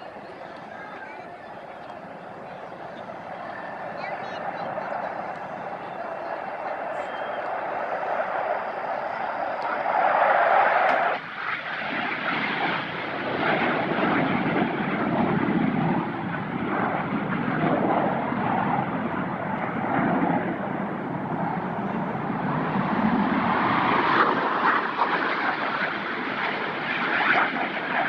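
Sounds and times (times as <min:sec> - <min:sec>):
aircraft engine drone: 0:00.0 - 0:28.0.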